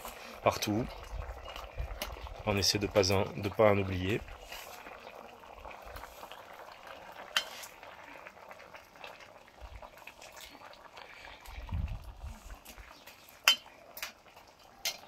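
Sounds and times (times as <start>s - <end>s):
broth bubbling in a pan: 0.0s - 15.0s
metal ladle clinking on pan: 13.4s - 14.1s.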